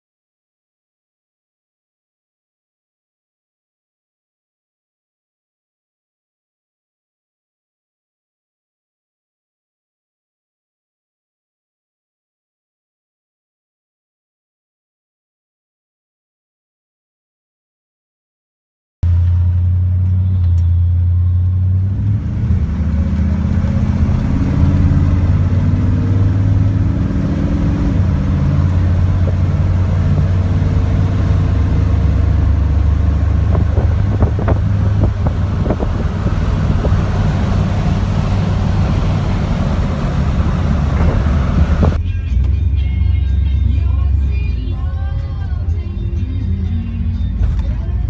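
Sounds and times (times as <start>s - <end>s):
car engine from inside cabin: 19.0s - 48.0s.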